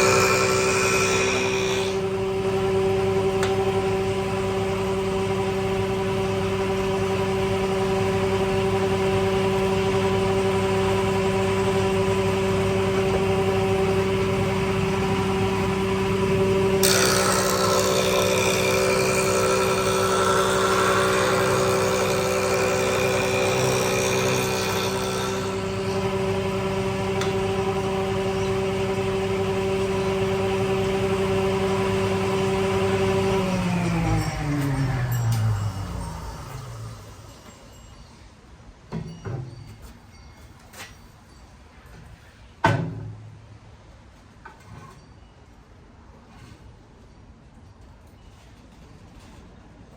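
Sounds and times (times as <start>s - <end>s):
timber being cut: 0.0s - 2.2s, 15.7s - 37.3s
woodworking machine whine: 0.0s - 38.4s.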